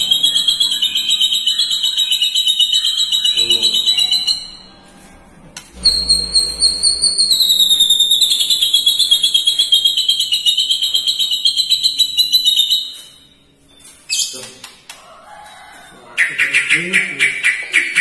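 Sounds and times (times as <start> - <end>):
bird trilling: 0.0 - 4.8, 5.8 - 13.3.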